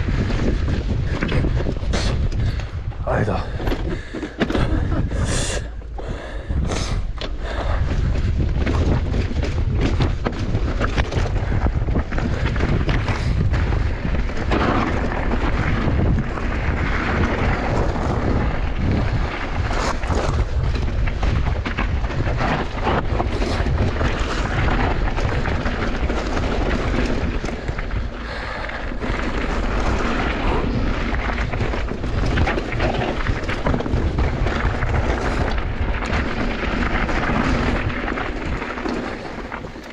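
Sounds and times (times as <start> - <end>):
bike knocking and rattling: 0.0 - 39.9
wind rumbling on microphone: 0.0 - 39.9
tyres on dirt: 6.6 - 39.9.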